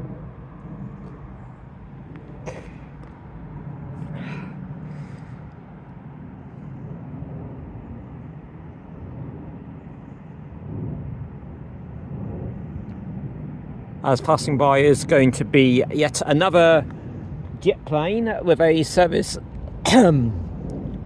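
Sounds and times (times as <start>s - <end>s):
distant vehicles rumbling: 0.0s - 21.0s.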